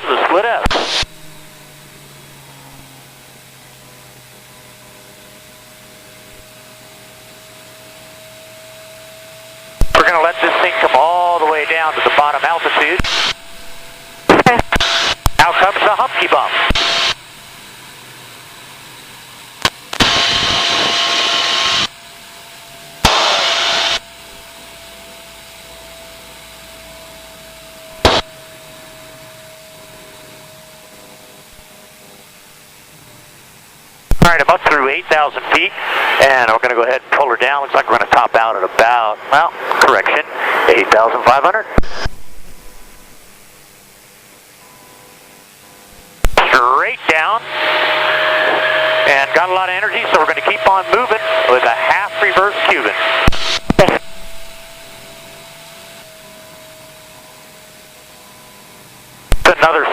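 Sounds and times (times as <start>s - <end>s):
radio hiss bursts: 0.0s - 1.5s, 9.8s - 17.2s, 19.6s - 22.0s, 23.0s - 24.0s, 28.0s - 28.3s, 34.1s - 43.8s, 46.2s - 55.5s, 59.3s - 59.9s
rushing cockpit noise: 0.0s - 2.8s, 9.3s - 17.4s, 19.6s - 22.1s, 22.7s - 24.5s, 27.8s - 29.8s, 34.1s - 43.9s, 46.2s - 56.9s, 59.3s - 59.9s
jet engine high whine: 0.0s - 59.9s.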